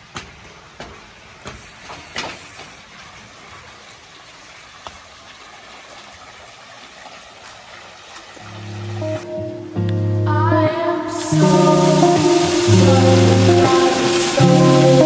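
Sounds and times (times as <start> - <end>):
music: 9.0 - 15.0.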